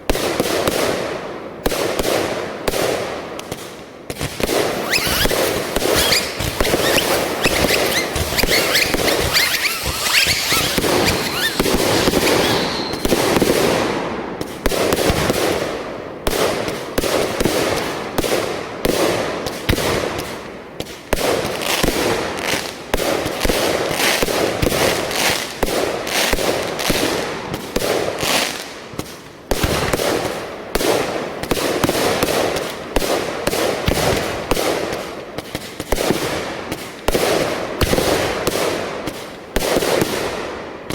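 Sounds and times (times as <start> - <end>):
fireworks bangs and pops: 0.0 - 40.9
fireworks crackling: 2.9 - 18.4.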